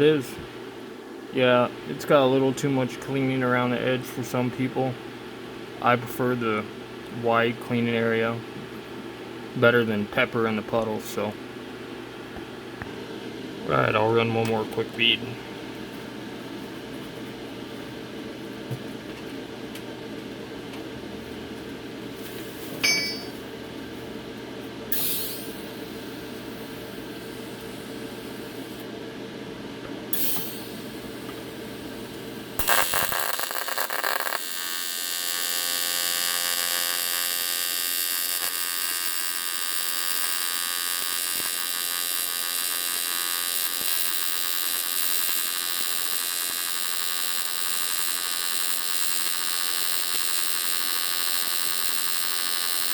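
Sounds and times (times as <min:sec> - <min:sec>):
low steady hum: 0:22.6 - 0:24.7
welding arc high-pitched buzz: 0:24.9 - 0:28.8, 0:30.1 - 0:52.9.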